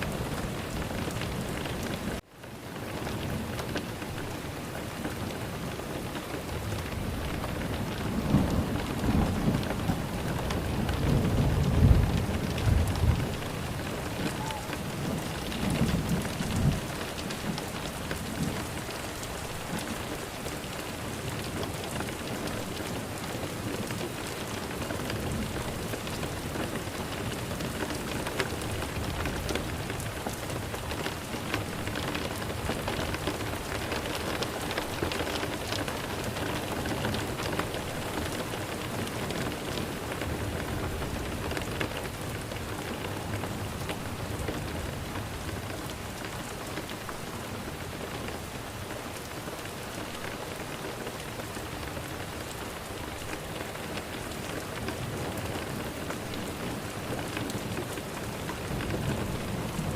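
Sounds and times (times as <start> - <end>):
steady rain falling: 0.0 - 59.9
low rumble of thunder: 6.4 - 24.3, 54.8 - 59.9.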